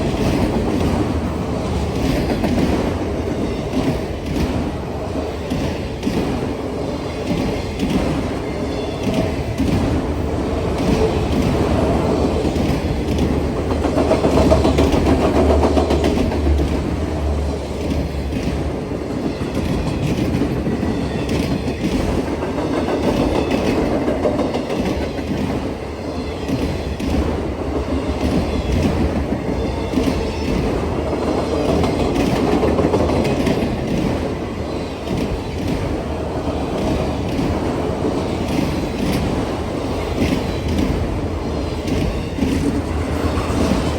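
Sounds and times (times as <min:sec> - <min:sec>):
train cars rumbling past: 0:00.0 - 0:43.9
wheels clacking over rail joints: 0:10.6 - 0:43.9.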